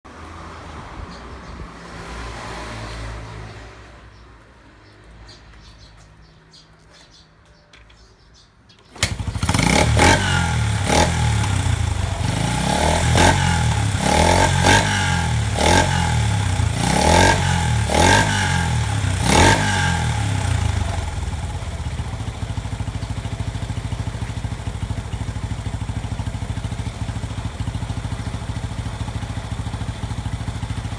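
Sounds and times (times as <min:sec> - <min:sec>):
motorcycle engine revving and idling: 0:08.9 - 0:30.9.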